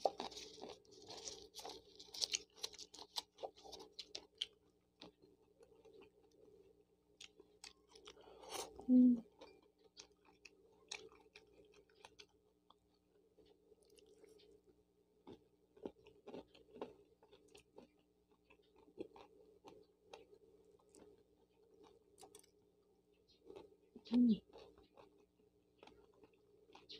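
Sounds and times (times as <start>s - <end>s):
soft chewing mouth clicks: 7.2s - 22.6s, 23.3s - 26.9s.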